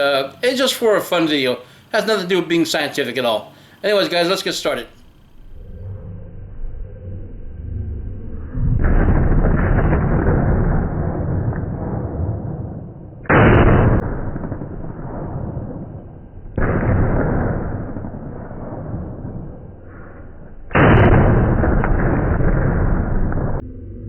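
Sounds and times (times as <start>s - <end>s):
slowed gunshot booms: 5.0s - 24.0s.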